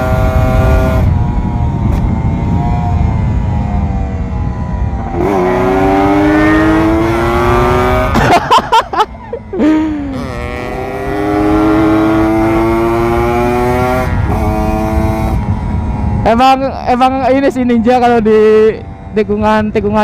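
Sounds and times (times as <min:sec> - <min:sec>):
motorcycle engine revving: 0:00.0 - 0:08.4, 0:09.6 - 0:16.3.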